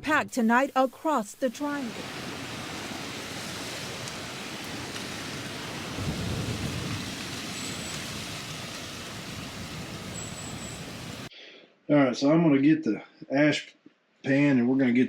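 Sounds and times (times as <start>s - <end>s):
steady rushing storm noise: 1.7s - 11.3s.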